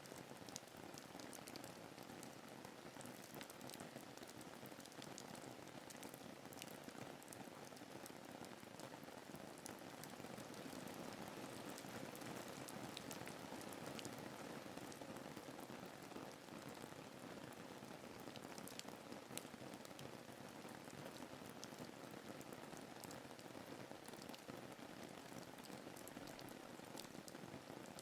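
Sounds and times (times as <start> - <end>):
rain falling: 0.0 - 28.0
raindrop ticks: 11.8 - 14.2.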